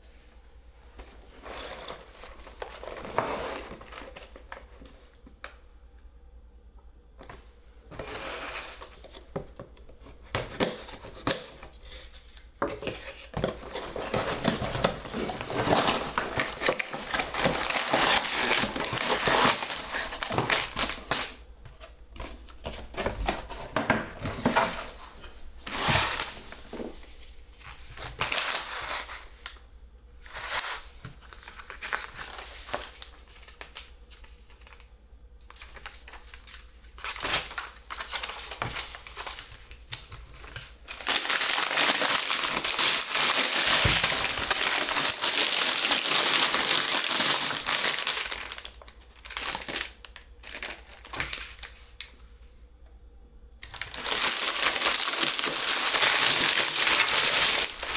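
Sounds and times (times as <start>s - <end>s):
plastic bag crinkling: 1.4s - 4.9s, 13.1s - 21.4s, 35.6s - 51.8s, 53.6s - 57.9s.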